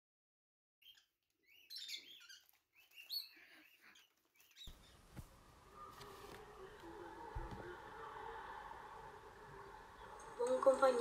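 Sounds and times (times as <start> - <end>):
small birds chirping: 0.8 - 5.5.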